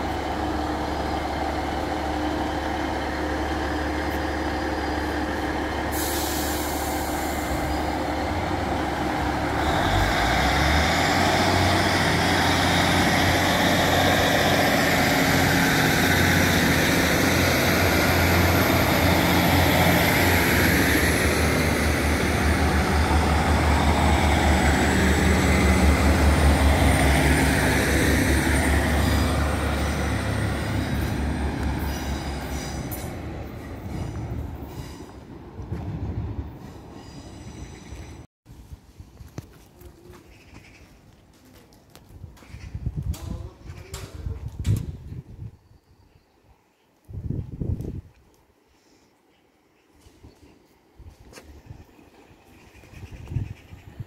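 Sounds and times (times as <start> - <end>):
train running with whine: 0.0 - 38.2.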